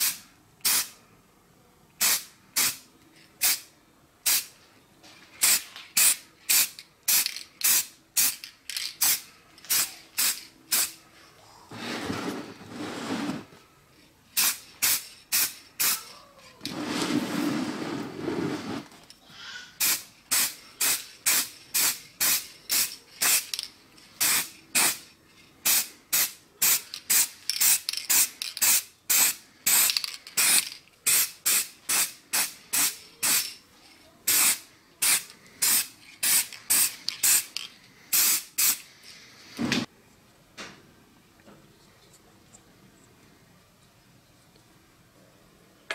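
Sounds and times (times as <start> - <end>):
spray can hissing bursts: 0.0 - 1.0, 2.0 - 2.8, 3.4 - 4.5, 5.4 - 8.4, 9.0 - 11.0, 14.4 - 16.0, 19.8 - 23.6, 24.2 - 33.5, 34.3 - 38.9.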